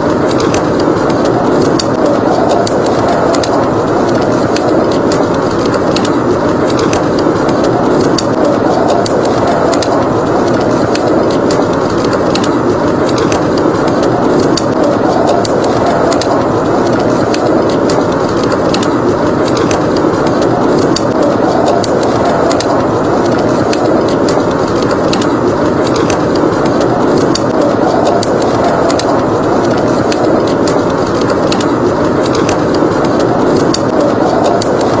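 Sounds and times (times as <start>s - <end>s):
blizzard wind rushing: 0.0s - 35.0s
wood fire crackling: 0.0s - 35.0s.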